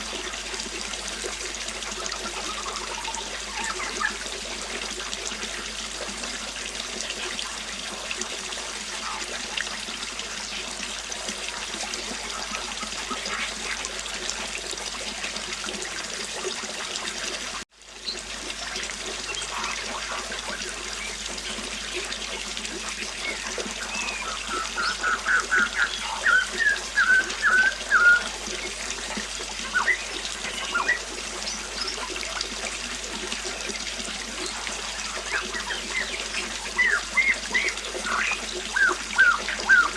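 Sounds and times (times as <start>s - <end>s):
river water flowing: 0.0s - 39.9s
birds chirping: 2.2s - 4.2s, 8.9s - 9.8s, 19.2s - 32.3s, 33.5s - 39.9s
bird singing bright notes: 23.2s - 28.3s, 29.7s - 32.0s.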